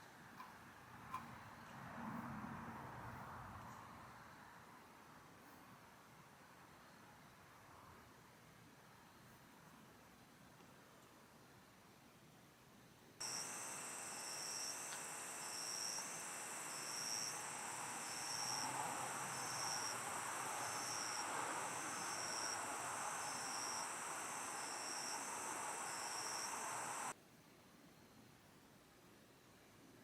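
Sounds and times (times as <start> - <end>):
cricket chirping: 13.2 - 27.1
crickets trilling: 13.2 - 27.1.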